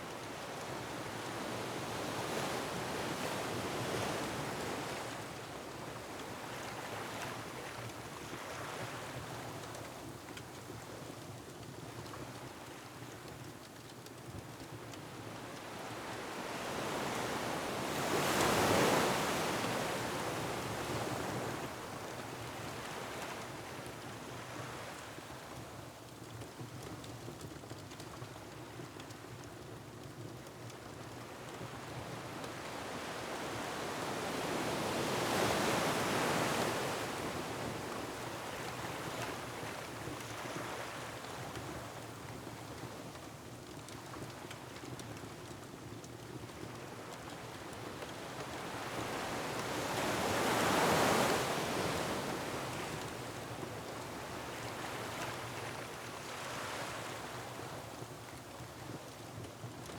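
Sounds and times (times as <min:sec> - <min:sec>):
ocean waves breaking on rocks: 0:48.2 - 0:57.8.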